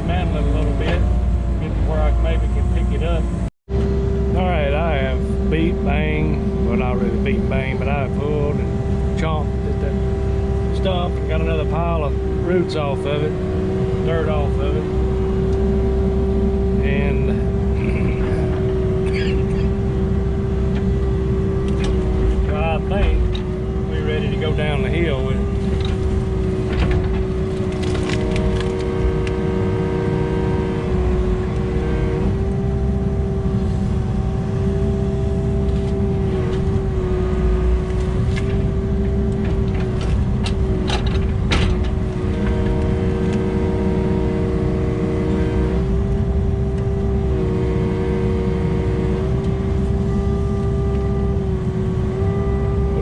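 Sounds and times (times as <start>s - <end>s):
excavator diesel engine running: 16.8s - 28.8s.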